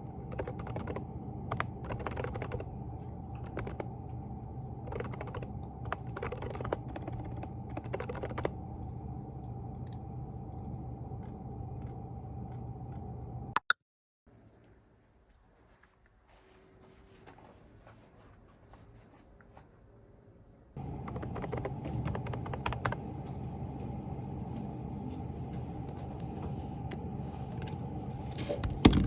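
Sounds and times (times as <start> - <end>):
low room hum: 0.0 - 13.6, 14.3 - 29.0.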